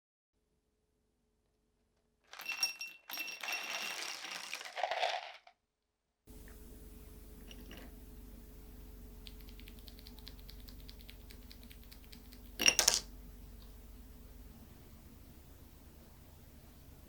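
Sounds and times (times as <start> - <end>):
faint steady hum: 6.3 - 17.0.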